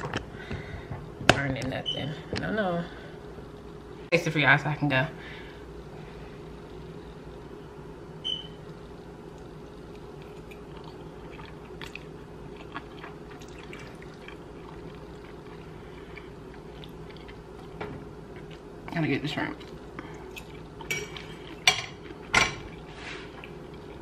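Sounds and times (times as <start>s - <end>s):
steady low hum: 0.0s - 24.0s
person chewing: 9.3s - 18.8s, 19.6s - 24.0s.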